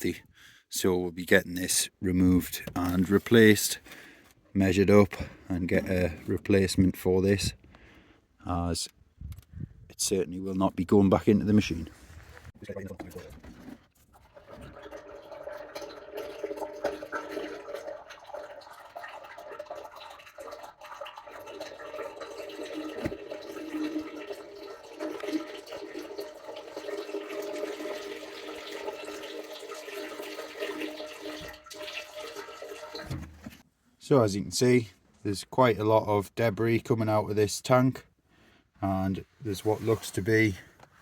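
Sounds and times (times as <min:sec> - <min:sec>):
oil pouring into container: 0:13.6 - 0:33.6.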